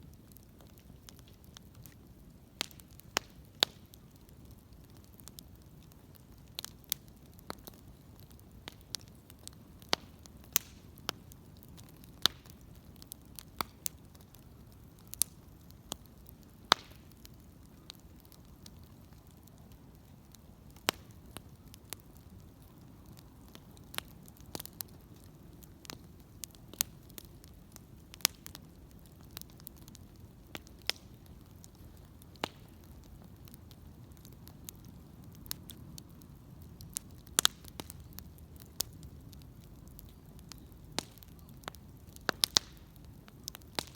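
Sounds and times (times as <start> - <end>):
bonfire crackling: 0.0 - 43.9.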